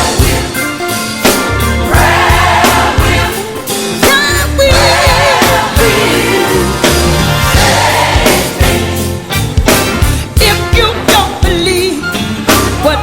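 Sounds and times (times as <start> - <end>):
bass guitar: 0.0 - 13.0
drums: 0.0 - 13.0
female vocal group singing: 2.0 - 3.5, 4.1 - 6.8.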